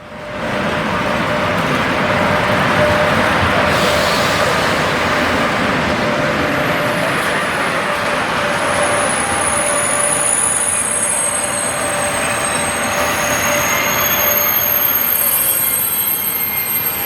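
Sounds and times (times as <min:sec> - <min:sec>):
train rushing: 0:00.0 - 0:17.0
wheels squealing: 0:06.5 - 0:17.0.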